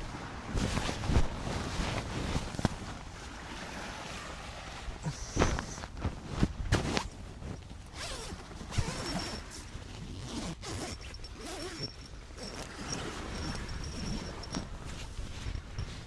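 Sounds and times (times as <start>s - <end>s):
rustling handling noise: 0.0s - 3.4s, 5.1s - 16.0s
zipper being pulled: 7.9s - 16.0s.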